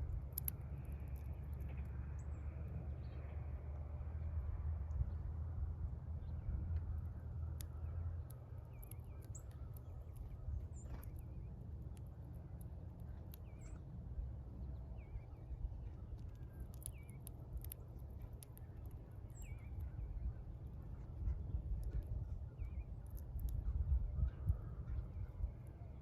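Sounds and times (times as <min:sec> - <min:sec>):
small birds chirping: 0:00.0 - 0:03.8, 0:04.8 - 0:26.0
steady low rumble: 0:00.0 - 0:26.0
sharp clicks: 0:16.2 - 0:19.9.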